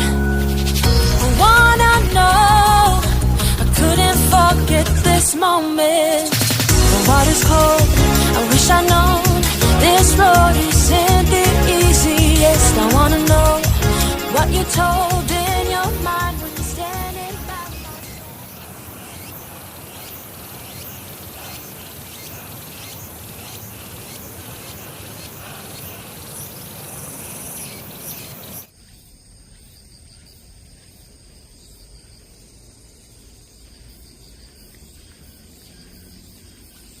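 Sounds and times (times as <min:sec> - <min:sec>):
insect chorus buzzing: 0:00.0 - 0:37.0.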